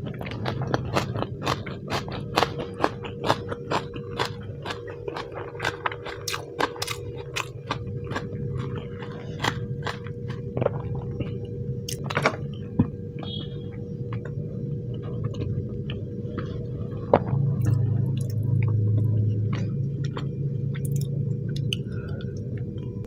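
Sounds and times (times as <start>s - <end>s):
person chewing food: 0.0s - 12.2s, 14.1s - 22.9s
steady low hum: 0.0s - 23.0s.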